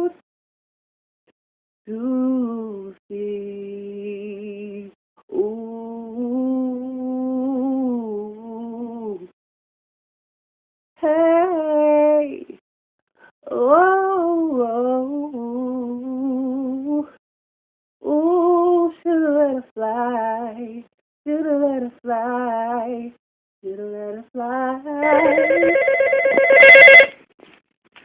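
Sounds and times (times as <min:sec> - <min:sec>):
person singing unaccompanied: 0:18.0 - 0:26.6
telephone ringing: 0:25.0 - 0:27.2.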